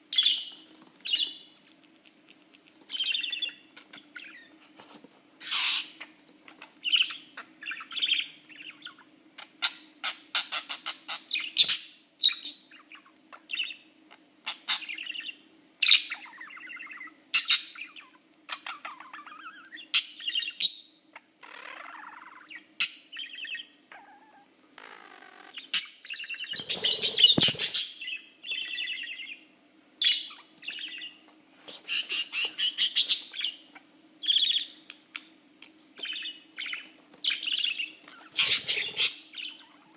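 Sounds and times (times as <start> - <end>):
faint steady hum: 0.0 - 39.9
budgerigar chattering: 38.4 - 39.2.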